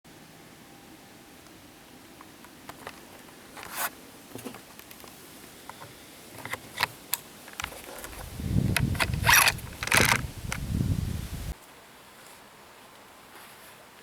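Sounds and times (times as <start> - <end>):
scraping and rustling strokes: 2.9 - 7.0, 7.6 - 11.6.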